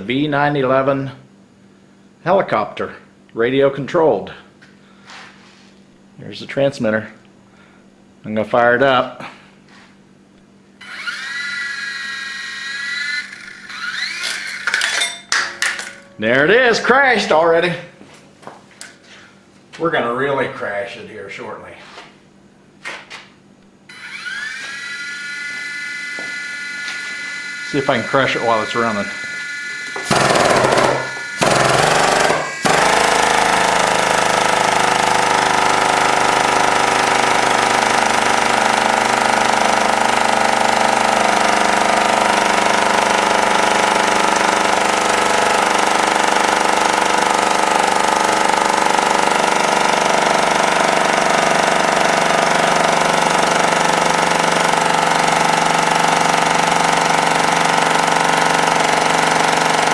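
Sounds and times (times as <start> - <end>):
hydraulic pump motor running: 10.8 - 16.2, 23.9 - 59.9.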